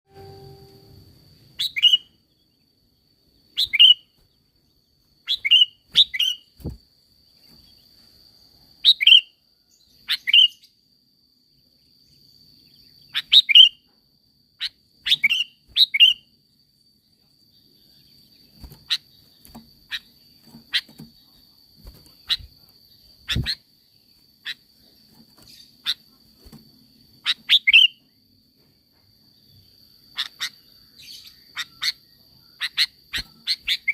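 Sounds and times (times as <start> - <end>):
steady high whine: 0.1 - 1.5.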